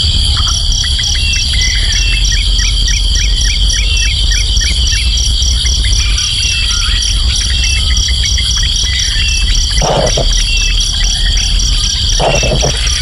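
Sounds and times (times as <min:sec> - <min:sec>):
insect chorus: 0:00.0 - 0:13.0
bird chirping: 0:05.7 - 0:13.0.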